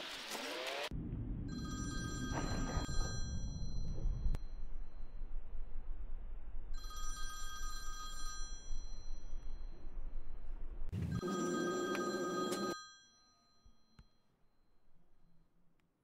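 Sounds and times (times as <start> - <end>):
low rumble: 0.9 - 11.2
bell-like ringing tone: 1.5 - 5.4, 6.7 - 15.0.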